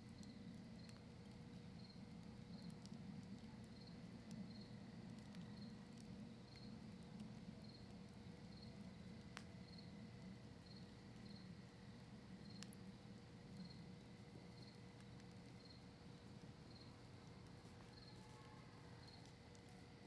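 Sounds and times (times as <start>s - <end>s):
campfire crackling: 0.0s - 20.0s
cricket chirping: 9.6s - 11.6s, 13.5s - 13.8s, 14.5s - 15.8s, 16.6s - 17.0s.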